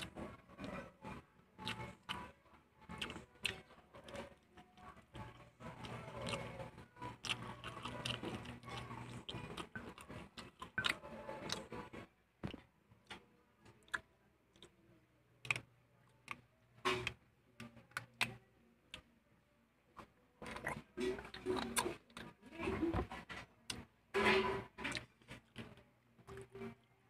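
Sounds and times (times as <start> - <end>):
chewing and lip-smacking: 0.0 - 14.8, 20.0 - 22.4.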